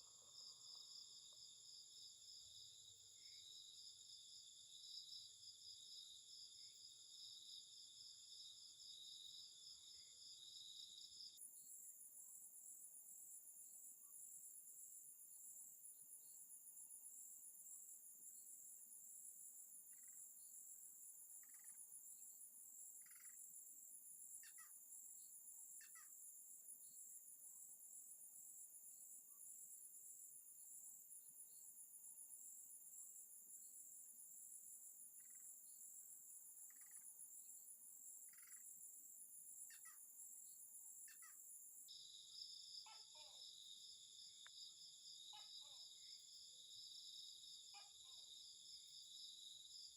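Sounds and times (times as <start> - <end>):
short high insect calls: 38.0 - 43.6.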